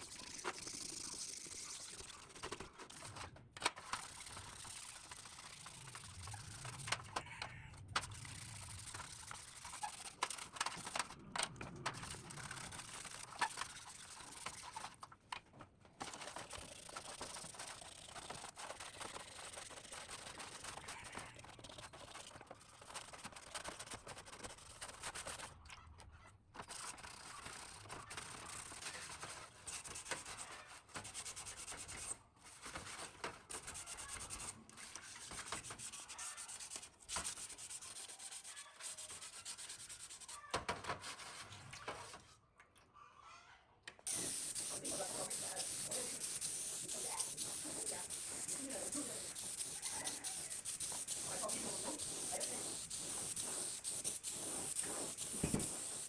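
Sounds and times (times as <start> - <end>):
hand scraping on metal parts: 44.1 - 56.0.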